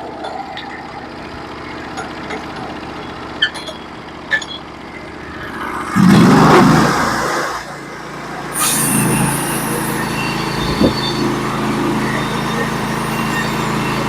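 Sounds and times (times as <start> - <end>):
sawmill engine running: 0.0 - 14.0.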